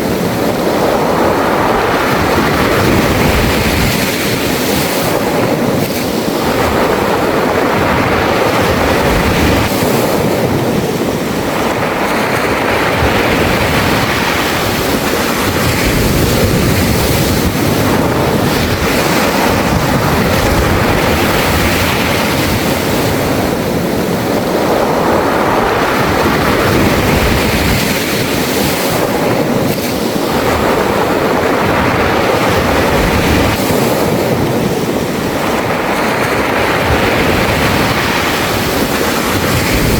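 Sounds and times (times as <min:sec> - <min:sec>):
waves washing over pebbles: 0:00.0 - 0:39.9.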